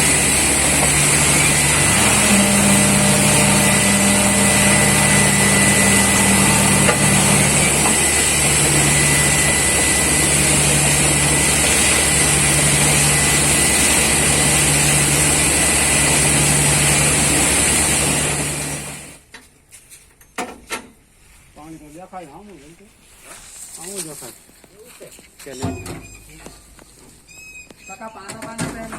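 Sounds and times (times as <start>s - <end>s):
drilling rig engine running: 0.0s - 19.2s.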